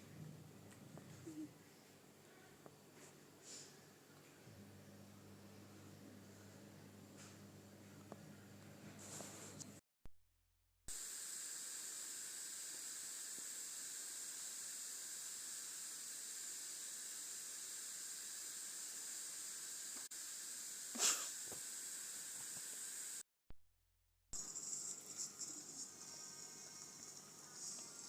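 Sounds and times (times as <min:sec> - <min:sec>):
short noisy puff: 0:21.0 - 0:21.4
steady background hiss: 0:24.4 - 0:28.0.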